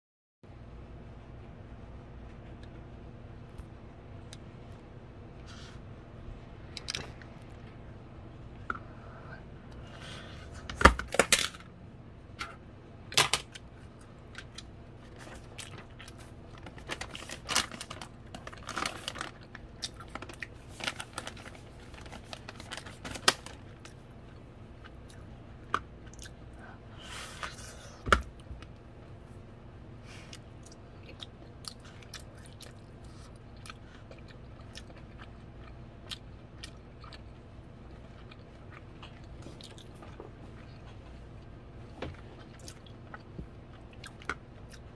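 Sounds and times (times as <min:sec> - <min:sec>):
chewing corn with wet crunches: 0:30.6 - 0:41.5, 0:42.2 - 0:44.9.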